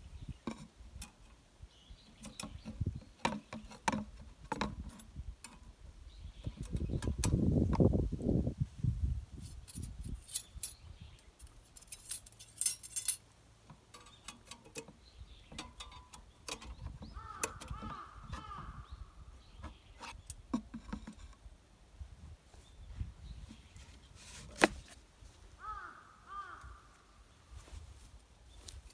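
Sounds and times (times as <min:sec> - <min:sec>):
thin metal parts clinking: 0:09.4 - 0:13.2.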